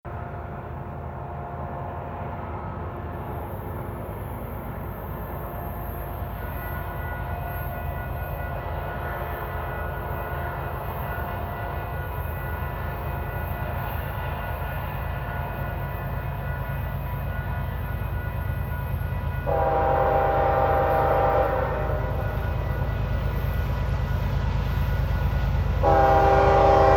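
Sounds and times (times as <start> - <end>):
diesel locomotive rumble: 0.1 - 26.9
locomotive horn: 19.4 - 22.5, 25.8 - 26.9.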